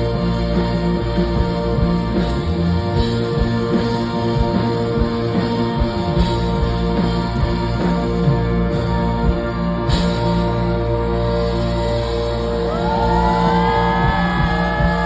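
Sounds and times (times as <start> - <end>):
deep bass: 0.0 - 15.0
drums: 0.0 - 15.0
electric guitar: 0.0 - 15.0
live rock band playing: 0.0 - 15.0.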